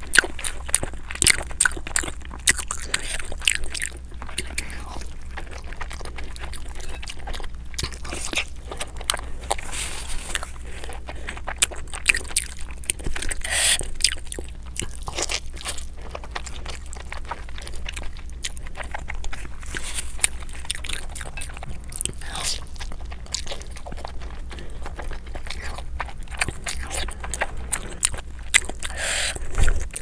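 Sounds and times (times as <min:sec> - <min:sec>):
chewing with wet crunching: 0:00.0 - 0:30.0.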